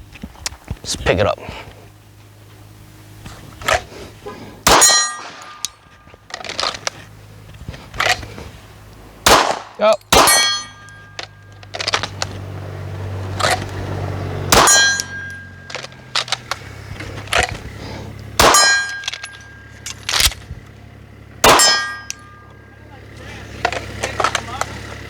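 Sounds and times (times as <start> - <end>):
pistol shots: 4.6 - 5.8, 9.2 - 12.2, 14.4 - 16.5, 18.4 - 20.5, 21.4 - 22.4
steel target ringing: 4.6 - 6.0, 9.2 - 11.8, 14.4 - 16.5, 18.4 - 20.4, 21.4 - 22.8.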